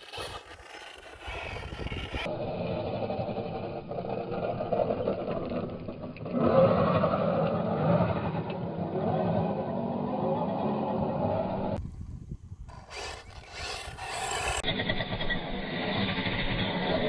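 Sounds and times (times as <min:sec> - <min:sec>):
tyres on dirt: 0:00.0 - 0:02.3, 0:11.8 - 0:14.6
rc truck drivetrain whine: 0:00.0 - 0:09.0, 0:11.2 - 0:17.0.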